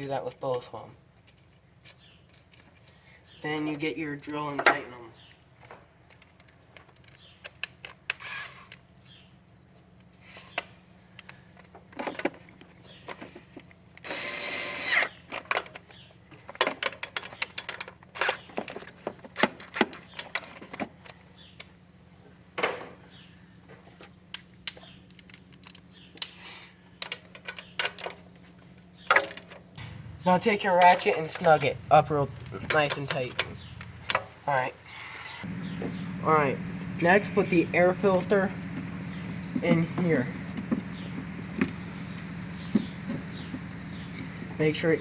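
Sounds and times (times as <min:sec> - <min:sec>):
tools and parts clicking: 0:01.3 - 0:03.0, 0:06.1 - 0:08.8, 0:10.5 - 0:21.8, 0:24.0 - 0:26.4, 0:27.0 - 0:28.5, 0:29.1 - 0:29.6
power drill running: 0:14.0 - 0:15.1.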